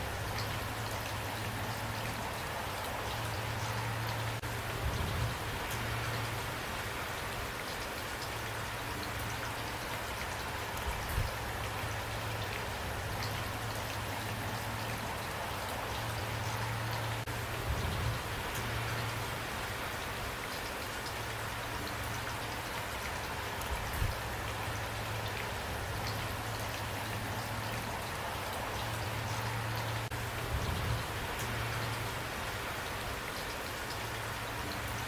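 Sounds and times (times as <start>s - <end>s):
raindrops ticking on surface: 0.0s - 35.0s
steady rain: 0.0s - 35.0s.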